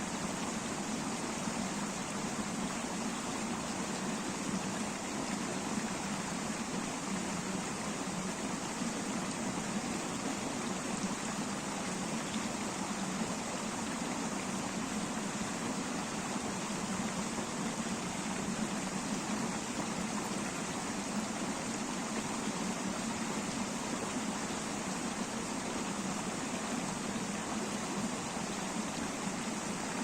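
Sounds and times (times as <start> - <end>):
river water rushing over stones: 0.0 - 30.0.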